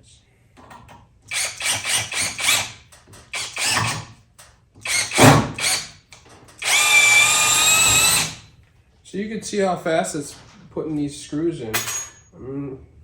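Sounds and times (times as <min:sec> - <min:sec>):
mechanical ratcheting bursts: 0:01.3 - 0:04.1, 0:04.8 - 0:06.0, 0:06.6 - 0:08.5.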